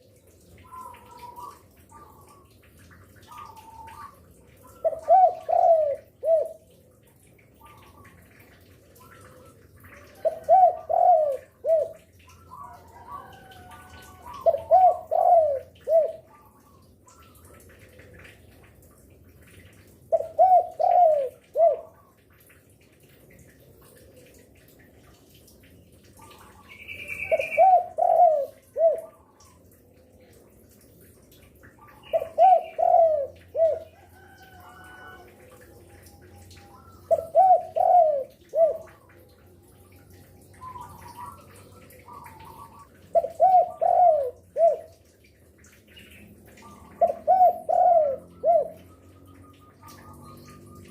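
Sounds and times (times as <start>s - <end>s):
dove cooing: 3.2s - 18.4s, 20.1s - 22.2s, 26.2s - 30.4s, 31.8s - 45.1s, 46.5s - 50.9s.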